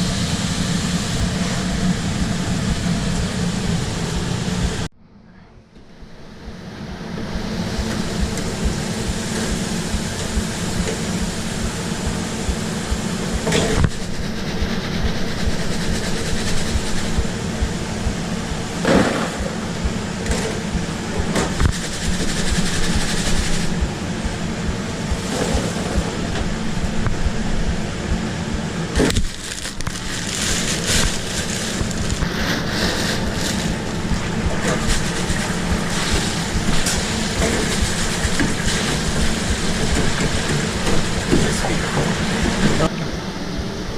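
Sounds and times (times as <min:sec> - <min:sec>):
grill and fryer sizzling: 0:00.0 - 0:04.9, 0:06.1 - 0:43.9
extraction fan hum: 0:00.0 - 0:43.9.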